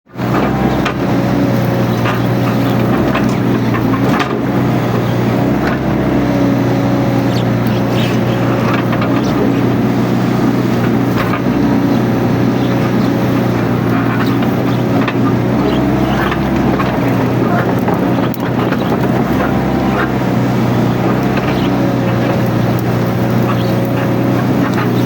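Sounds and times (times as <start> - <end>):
excavator diesel engine running: 0.1 - 25.0.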